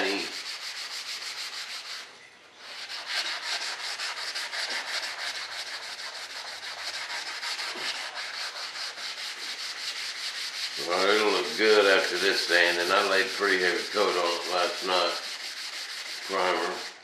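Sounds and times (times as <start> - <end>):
sandpaper rubbing on sanding block: 0.0 - 17.0.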